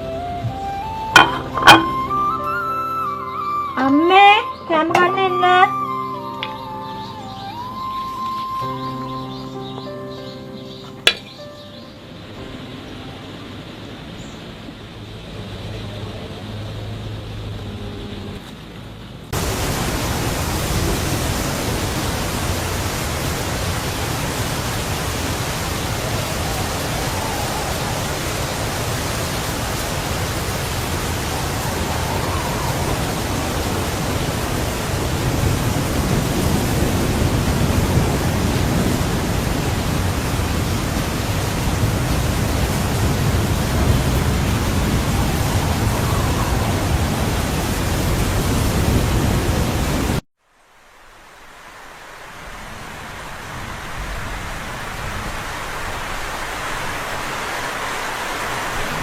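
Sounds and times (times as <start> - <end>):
loud steady rushing noise: 0.0 - 2.2, 12.1 - 50.2.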